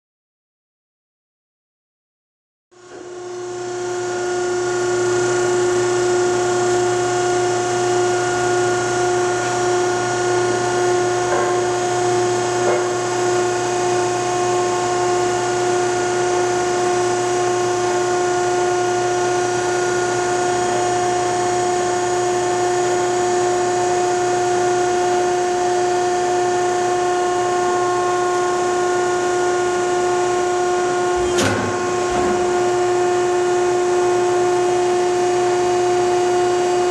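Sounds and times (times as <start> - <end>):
hydraulic power unit whining: 2.8 - 36.9
low hum: 30.8 - 34.7.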